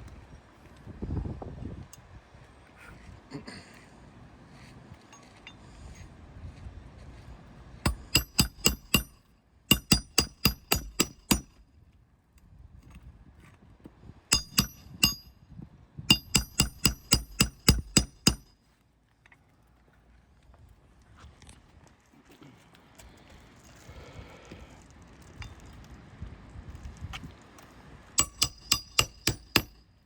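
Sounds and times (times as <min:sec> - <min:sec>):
hammer striking nails: 0:07.9 - 0:11.6, 0:14.3 - 0:15.3, 0:16.1 - 0:18.5, 0:28.2 - 0:29.8.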